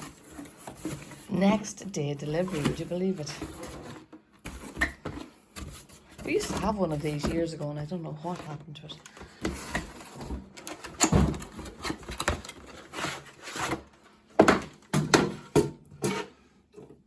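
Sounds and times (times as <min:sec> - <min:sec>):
object being handled: 0:00.0 - 0:01.6.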